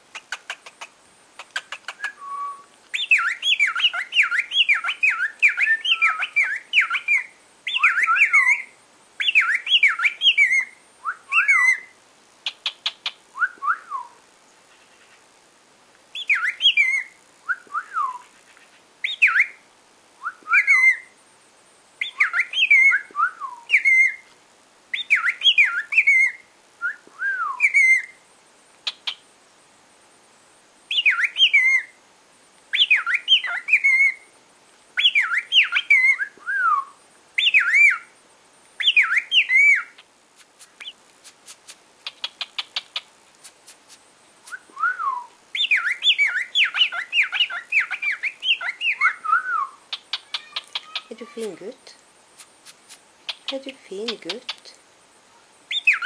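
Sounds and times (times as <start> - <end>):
cockatiel whistling: 1.8 - 11.9, 12.6 - 14.2, 16.2 - 18.3, 19.0 - 19.6, 20.2 - 21.1, 22.0 - 24.2, 25.0 - 28.2, 30.9 - 31.9, 32.8 - 34.2, 35.0 - 38.1, 38.8 - 40.0, 44.4 - 51.2, 55.7 - 56.0.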